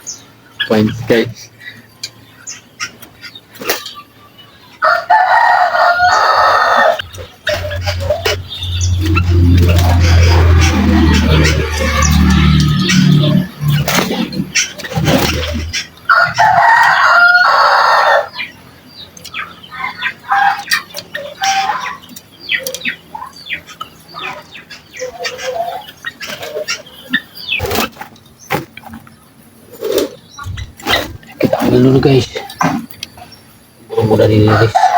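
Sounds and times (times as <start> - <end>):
rooster crowing: 4.8 - 13.8, 16.1 - 18.4, 34.5 - 34.9.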